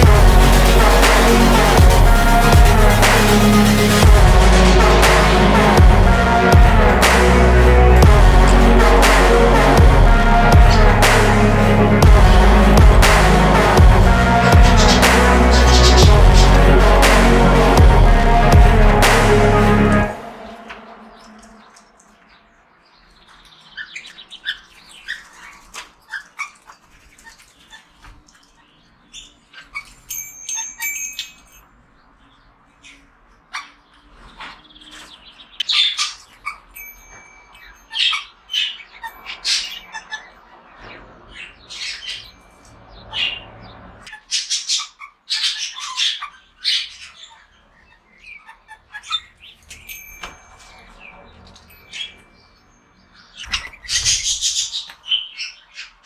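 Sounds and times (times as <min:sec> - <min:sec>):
budgerigars chirping and squawking: 0:32.8 - 0:36.7, 0:37.6 - 0:49.9, 0:50.5 - 0:56.0.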